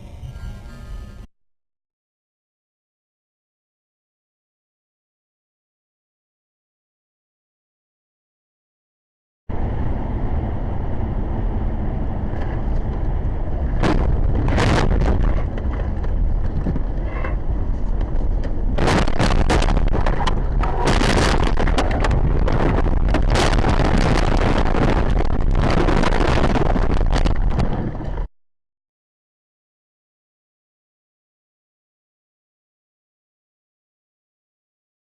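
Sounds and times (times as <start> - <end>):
road and wind noise: 9.5 - 28.3
sudden loud noise bursts: 13.8 - 15.5, 18.8 - 27.5.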